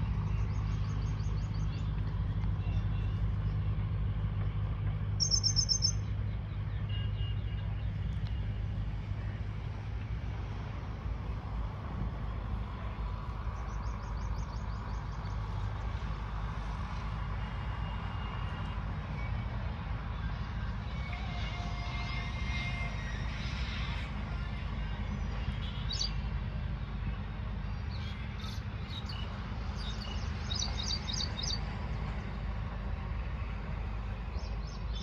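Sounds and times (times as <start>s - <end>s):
songbird trilling and chirping: 5.2s - 6.1s.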